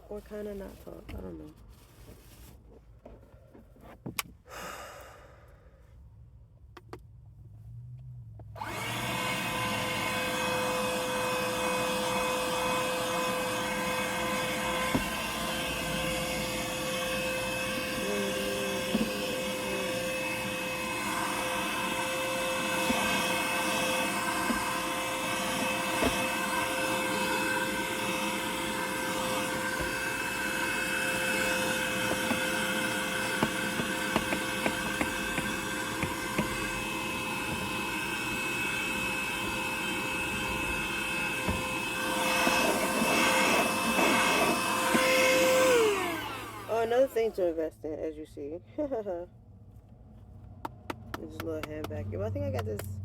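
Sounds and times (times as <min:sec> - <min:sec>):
handheld vacuum cleaner running: 0:08.6 - 0:47.4.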